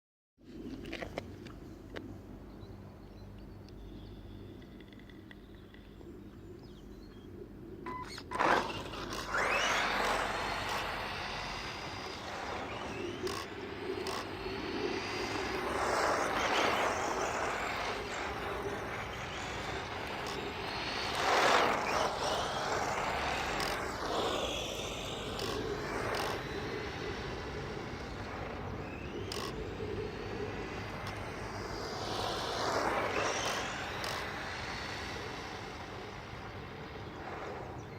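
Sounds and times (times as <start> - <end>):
whine sliding in pitch: 7.4 - 37.9
toy car motor and tyres: 7.9 - 37.9.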